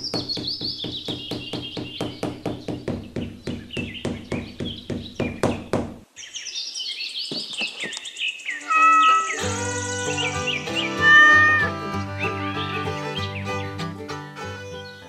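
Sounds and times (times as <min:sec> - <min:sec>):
birds chirping: 0:00.0 - 0:13.8.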